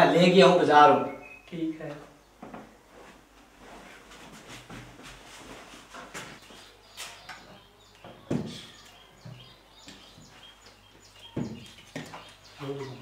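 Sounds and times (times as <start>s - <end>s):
birds chirping: 0.0s - 2.9s, 6.1s - 13.0s.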